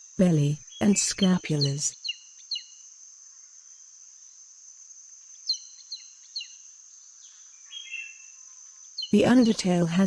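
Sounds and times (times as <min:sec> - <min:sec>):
insects droning: 0:00.0 - 0:10.0
bird chirping: 0:00.2 - 0:02.8, 0:05.3 - 0:10.0.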